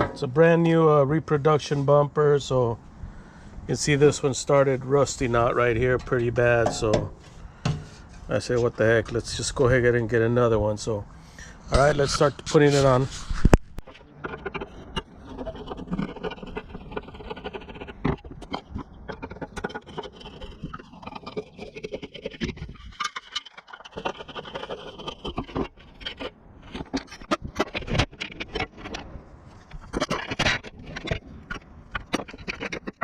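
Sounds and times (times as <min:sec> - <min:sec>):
metal tools scraping and clinking: 0:11.7 - 0:16.3.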